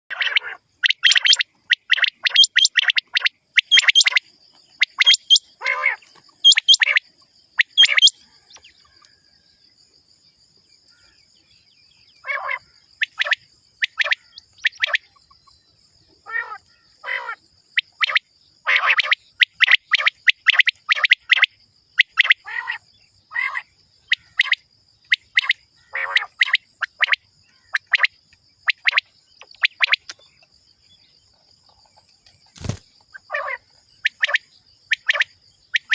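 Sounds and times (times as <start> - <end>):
quail calling: 0.1 - 9.2, 12.2 - 15.4, 16.2 - 29.0, 32.6 - 35.9.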